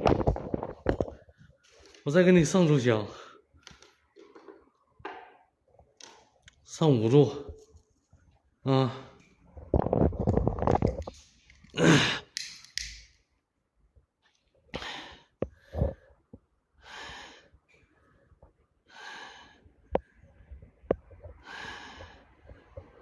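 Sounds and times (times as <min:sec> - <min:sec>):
sharp clicks: 0:12.3 - 0:13.1.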